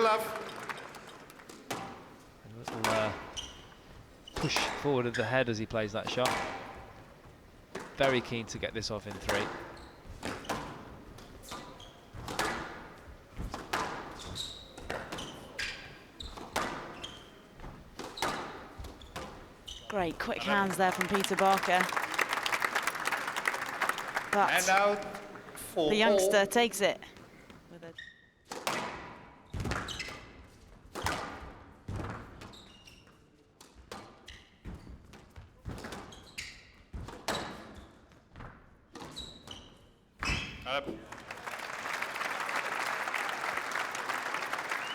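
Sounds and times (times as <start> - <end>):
squash ball hitting rackets and walls: 1.5 - 3.8, 6.0 - 7.1, 7.7 - 8.1, 9.0 - 19.8, 28.4 - 32.6, 33.9 - 39.6
shoe squeaks on court floor: 2.8 - 5.4, 9.3 - 13.0, 13.8 - 20.0, 32.4 - 33.2, 35.8 - 38.0, 39.0 - 40.8
squash ball hits: 9.1 - 15.3, 16.4 - 19.5.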